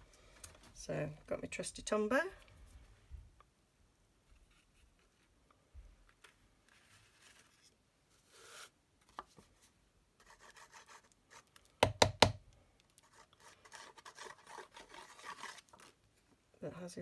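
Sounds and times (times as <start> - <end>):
sharp knocks: 11.8 - 12.4.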